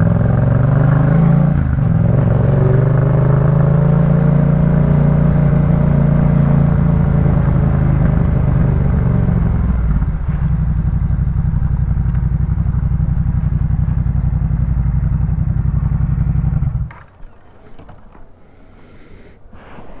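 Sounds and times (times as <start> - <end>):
motorcycle engine running: 0.0 - 18.2
faint clicks: 12.0 - 12.3.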